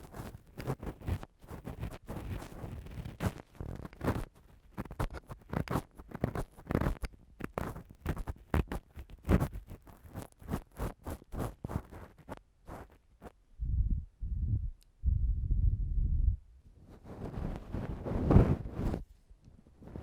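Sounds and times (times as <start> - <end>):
tool scratching against microphone: 0.0 - 13.0, 16.9 - 19.0.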